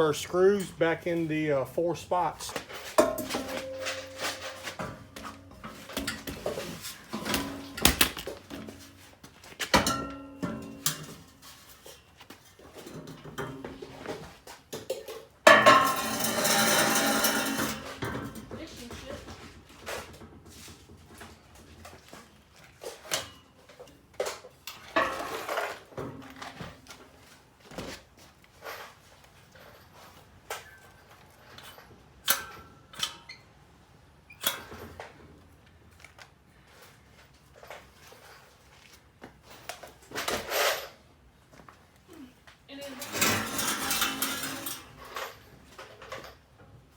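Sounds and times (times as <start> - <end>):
screws and tools clinking: 2.2 - 8.8, 43.0 - 46.4.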